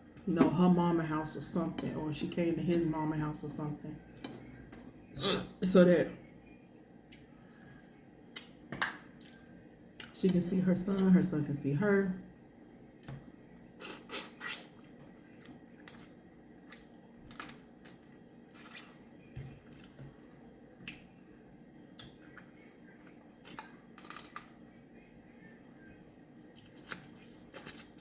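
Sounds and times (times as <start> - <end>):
chewing: 13.6 - 21.1.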